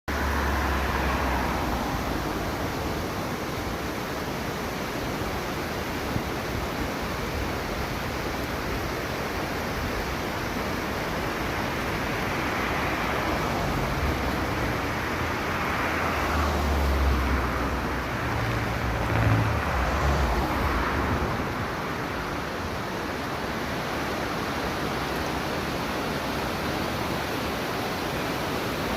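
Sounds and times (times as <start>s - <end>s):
vehicle passing with low rumble: 0.1s - 3.1s, 12.0s - 22.9s
waterfall rushing: 0.1s - 28.9s.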